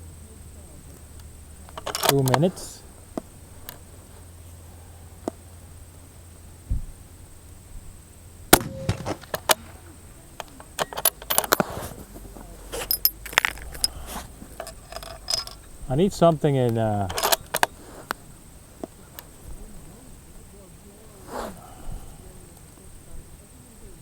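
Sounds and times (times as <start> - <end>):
rifle action metallic clicks: 1.7 - 2.6, 8.5 - 11.7, 17.0 - 17.8
rifle shot: 8.5 - 10.0.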